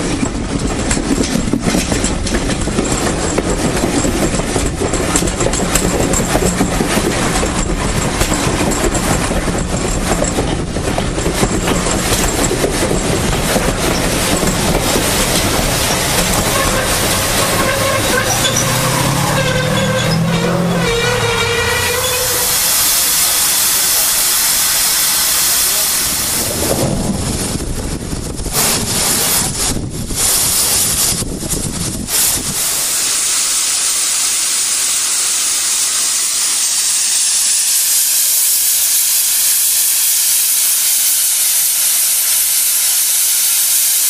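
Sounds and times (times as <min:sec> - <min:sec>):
train wheels clicking over rail joints: 0:00.0 - 0:44.0
pitched squeal: 0:13.8 - 0:26.6
loud hiss: 0:21.5 - 0:27.6, 0:28.2 - 0:44.0.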